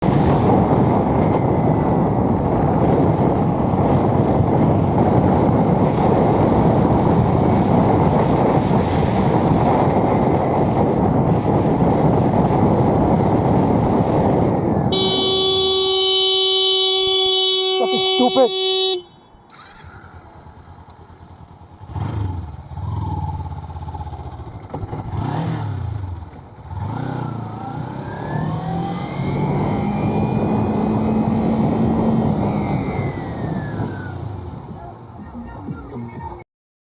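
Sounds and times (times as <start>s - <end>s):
motorcycle wind and riding noise: 0.0s - 36.4s
vehicle horn blast: 14.9s - 19.5s.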